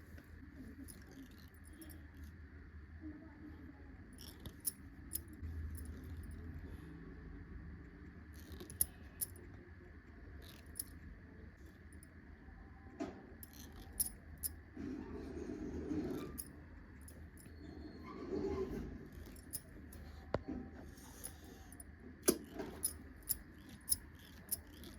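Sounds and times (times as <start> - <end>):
low steady hum: 0.0 - 24.9.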